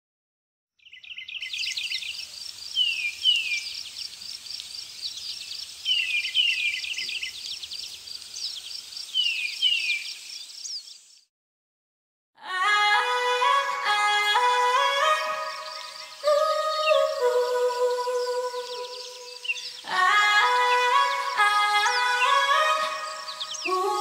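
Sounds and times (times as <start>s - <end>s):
down-sliding whistled birdsong: 0.8s - 11.3s, 14.4s - 24.0s
high pulsing chirp: 13.7s - 24.0s.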